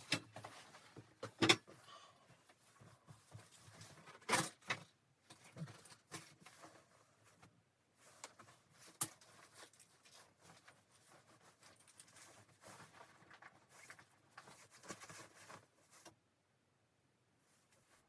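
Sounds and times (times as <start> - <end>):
rustling and clicking: 2.4 - 16.2.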